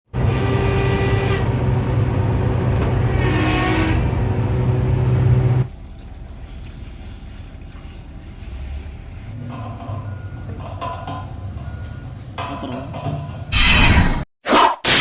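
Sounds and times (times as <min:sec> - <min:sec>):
excavator engine droning: 0:00.1 - 0:07.4.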